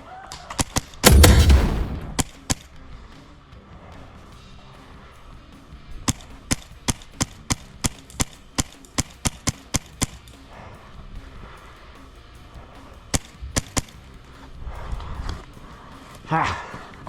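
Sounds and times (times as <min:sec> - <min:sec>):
airsoft gun shots: 0:01.0 - 0:02.3.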